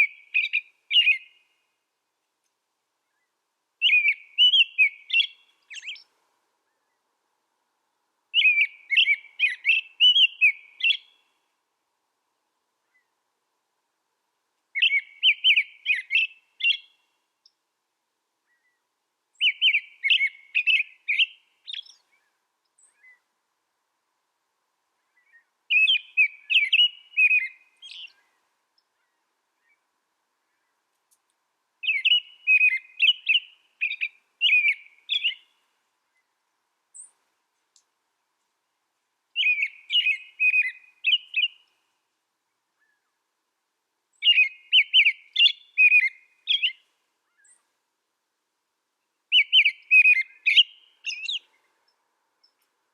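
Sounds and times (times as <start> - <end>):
songbird twittering: 0.0 - 1.6, 3.0 - 7.0, 8.3 - 11.4, 14.7 - 17.6, 18.4 - 23.3, 25.0 - 29.8, 31.8 - 37.2, 39.4 - 41.9, 44.1 - 47.7, 49.2 - 52.6.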